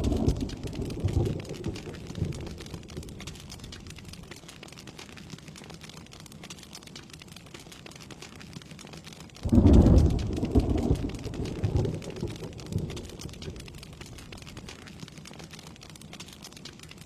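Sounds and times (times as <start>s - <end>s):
thunder rumbling: 0.0s - 4.3s, 9.4s - 14.7s
steady rain: 0.0s - 17.0s.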